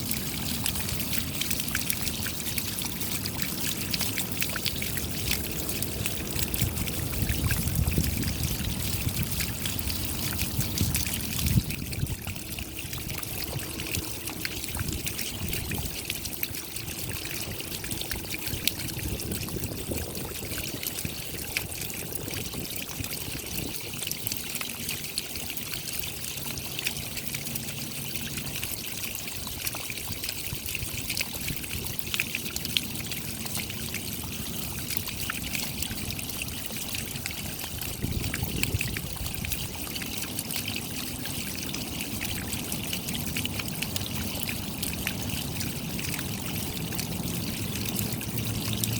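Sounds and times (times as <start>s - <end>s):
raindrops pattering: 0.0s - 24.1s, 31.8s - 48.9s
water trickling: 0.0s - 48.9s.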